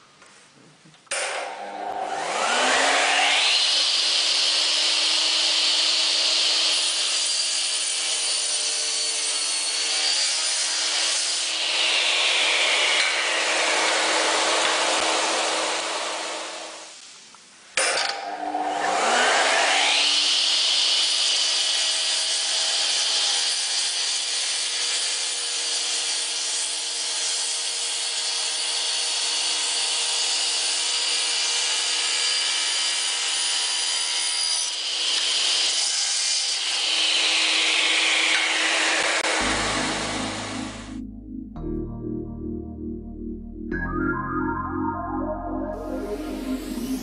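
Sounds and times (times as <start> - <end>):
mitre saw whining: 1.3 - 16.8, 18.4 - 21.6.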